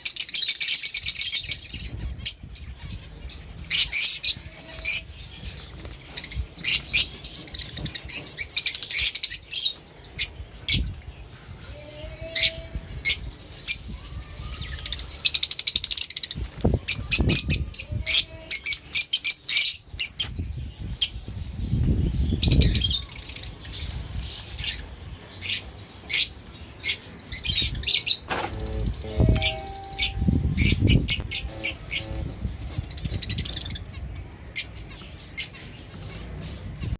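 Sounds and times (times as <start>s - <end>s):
birds chirping: 0.0s - 36.9s.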